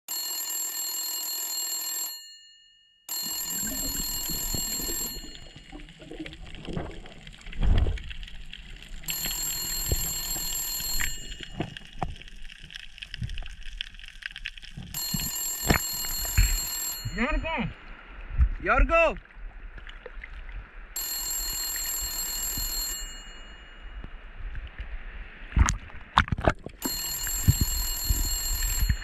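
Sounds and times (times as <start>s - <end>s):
telephone ringing: 0.1s - 5.9s, 9.1s - 11.8s, 15.0s - 17.7s, 21.0s - 24.0s, 26.8s - 29.0s
underwater clicks and knocks: 3.6s - 17.2s, 25.6s - 29.0s.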